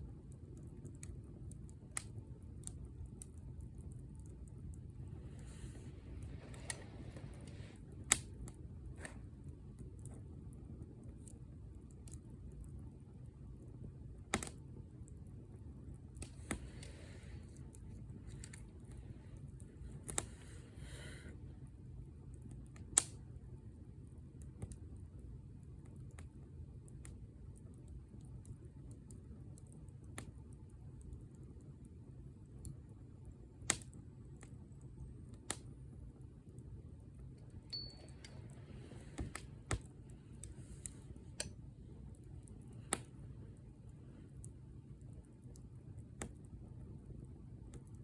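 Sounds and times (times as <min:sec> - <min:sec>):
low steady fire rumble: 0:00.0 - 0:48.0
wood fire crackling and popping: 0:00.0 - 0:48.0
sharp fire pops: 0:14.2 - 0:14.6, 0:22.8 - 0:23.2.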